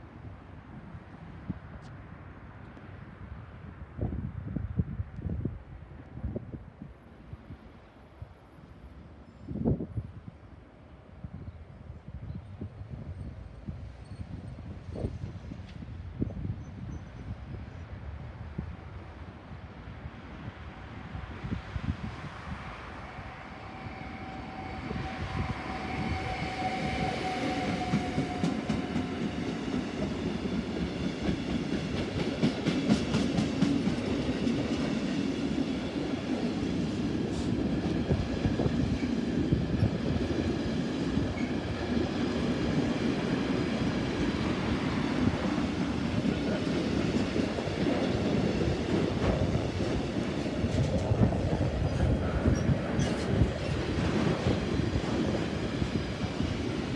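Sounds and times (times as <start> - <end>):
freight train rumbling: 12.2 - 56.9.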